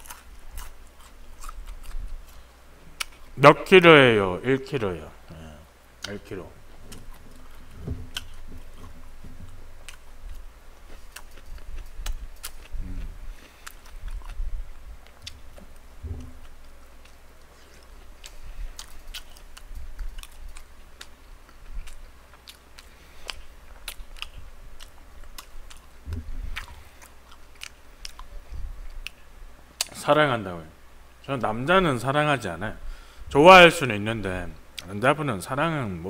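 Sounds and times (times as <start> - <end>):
chewing crunchy fried chicken: 0.0 - 3.3, 6.0 - 30.0
low thumps: 6.7 - 9.8, 16.0 - 16.5.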